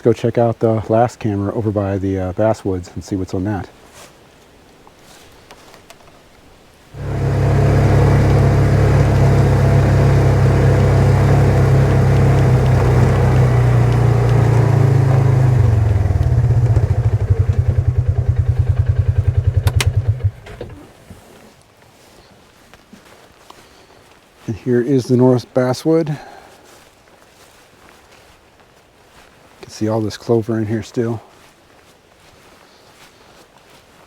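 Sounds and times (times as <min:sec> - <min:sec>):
small vehicle engine running: 0:07.0 - 0:20.9.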